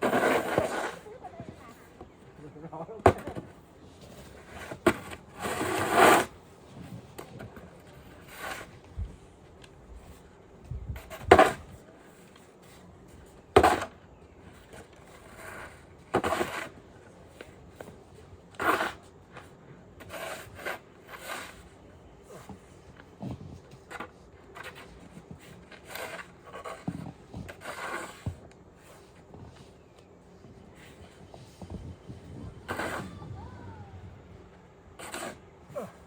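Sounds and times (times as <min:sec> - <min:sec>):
snow shovel scraping snow: 0:00.0 - 0:01.9, 0:04.0 - 0:07.0, 0:08.2 - 0:08.8, 0:15.2 - 0:16.8, 0:18.6 - 0:19.1, 0:20.0 - 0:21.7, 0:24.6 - 0:29.5, 0:30.8 - 0:33.5, 0:35.0 - 0:36.0.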